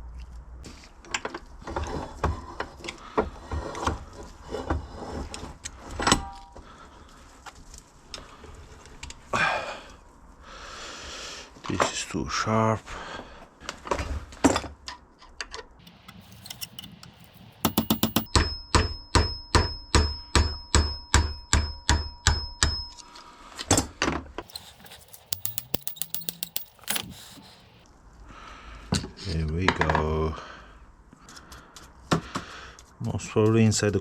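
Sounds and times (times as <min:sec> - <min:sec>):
hammer striking metal: 0:16.1 - 0:18.6.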